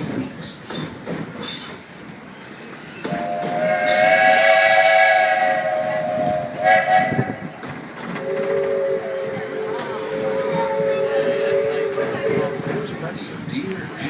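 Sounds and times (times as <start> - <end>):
train running on rails: 0.0 - 14.0
steam locomotive whistle: 3.1 - 7.6, 8.2 - 12.7.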